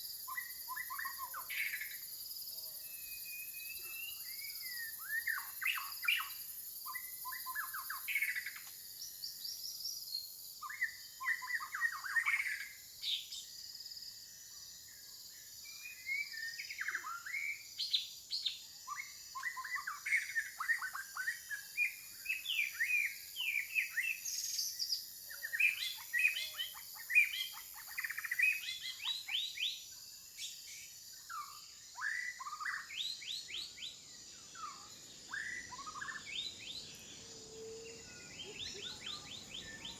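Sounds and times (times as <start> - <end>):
faint steady high hiss: 15.8 - 39.9
birds chirping: 34.5 - 39.9.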